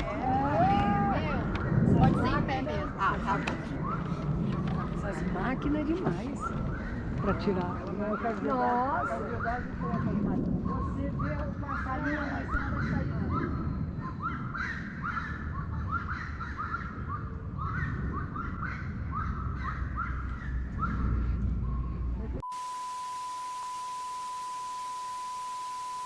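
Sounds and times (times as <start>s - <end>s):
low wind rumble: 0.0s - 22.4s
birds calling: 5.8s - 10.1s, 10.7s - 22.2s
steady pure tone: 22.2s - 26.0s.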